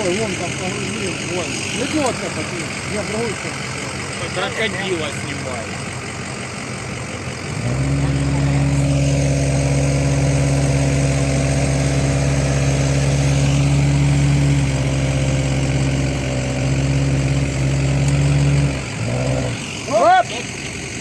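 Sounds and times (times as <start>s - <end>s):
motor droning under load: 7.1s - 19.9s.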